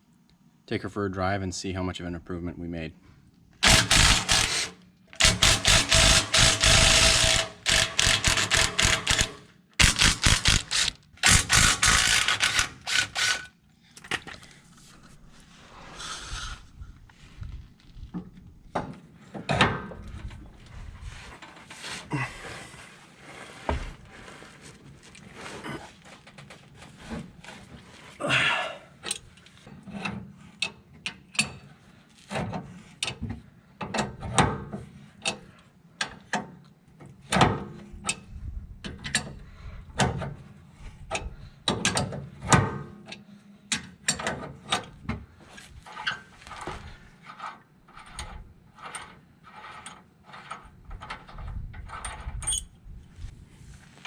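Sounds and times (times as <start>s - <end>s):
ratchet wrench clicking: 3.6s - 13.5s.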